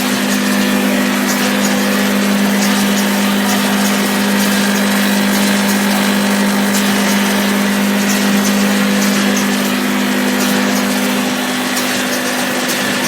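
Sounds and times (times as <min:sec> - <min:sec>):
production line machinery humming: 0:01.4 - 0:09.0.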